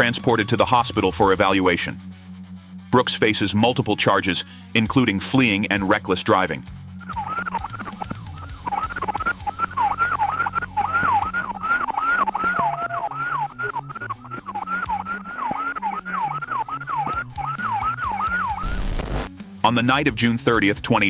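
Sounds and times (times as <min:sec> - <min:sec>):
police siren yelping: 0:07.2 - 0:19.3.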